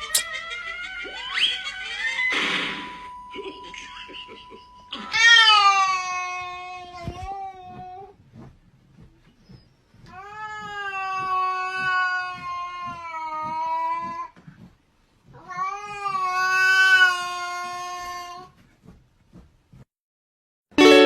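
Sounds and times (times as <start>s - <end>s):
cat yowling: 5.0s - 7.0s, 15.4s - 18.5s.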